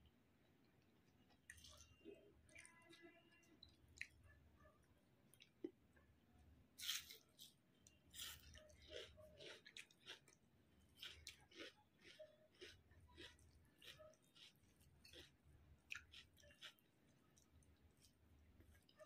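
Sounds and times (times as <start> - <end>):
person chewing: 6.8 - 19.0.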